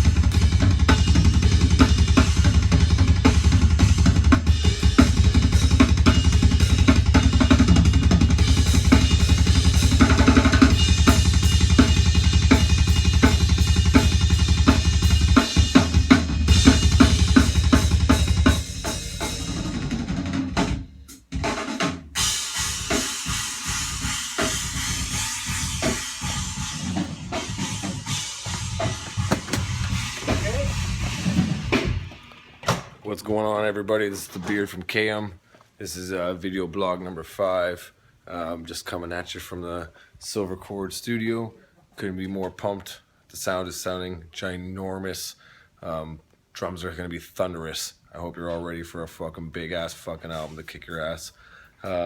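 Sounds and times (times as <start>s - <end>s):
fast double-bass kick drumming: 0.0s - 20.8s, 23.8s - 32.1s
snare and cymbals: 0.0s - 32.9s.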